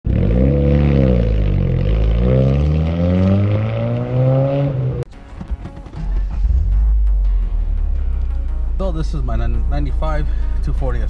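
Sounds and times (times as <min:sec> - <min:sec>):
car engine revving: 0:00.1 - 0:08.8.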